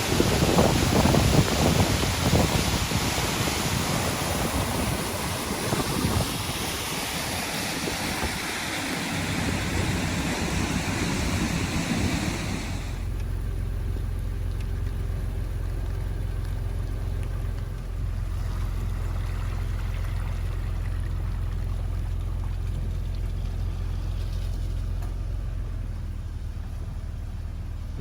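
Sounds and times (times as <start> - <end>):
heavy rain: 0.0 - 13.1
wind on microphone: 0.0 - 13.1
low engine-like hum: 0.0 - 28.0.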